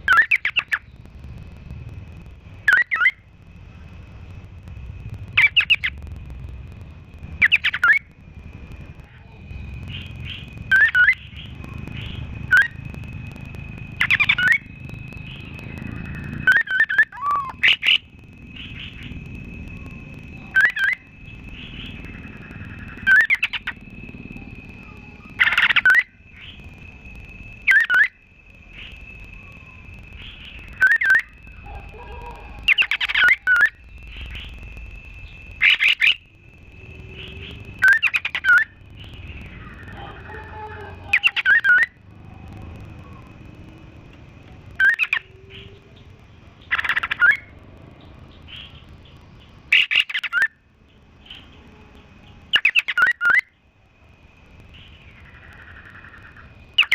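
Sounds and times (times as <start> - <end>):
low background rumble: 0.0 - 50.0, 50.6 - 56.9
songbirds chirping: 7.0 - 41.9.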